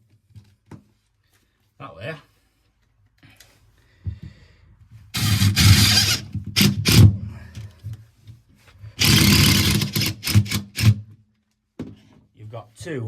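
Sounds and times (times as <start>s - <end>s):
power drill driving screws: 5.2s - 7.2s, 9.0s - 11.0s.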